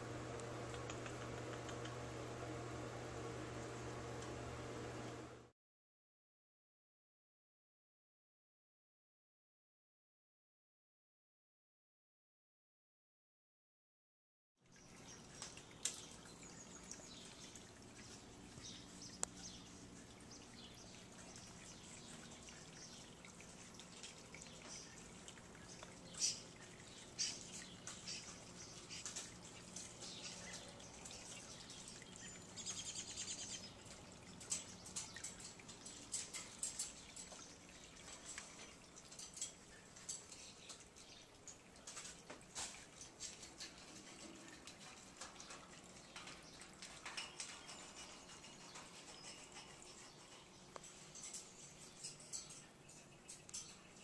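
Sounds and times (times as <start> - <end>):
small clicks and taps: 0.3 - 2.0, 19.2 - 19.4.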